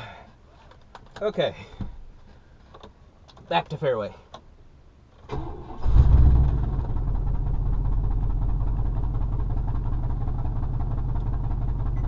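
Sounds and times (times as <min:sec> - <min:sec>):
truck engine idling: 0:07.0 - 0:12.0.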